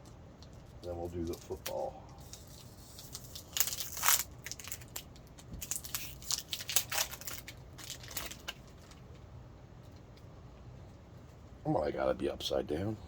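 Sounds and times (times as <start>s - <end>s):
wrapper tearing and crinkling: 1.2s - 9.2s.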